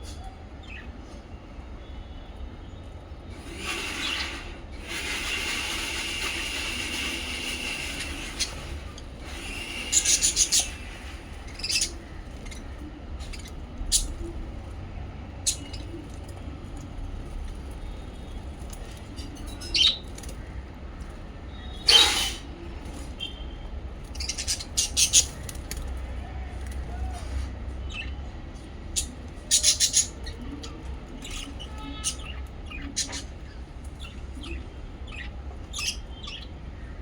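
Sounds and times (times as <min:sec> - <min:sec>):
parrots chirping: 0:07.6 - 0:14.4, 0:18.7 - 0:20.3, 0:21.5 - 0:22.5, 0:24.1 - 0:25.5, 0:28.9 - 0:36.6.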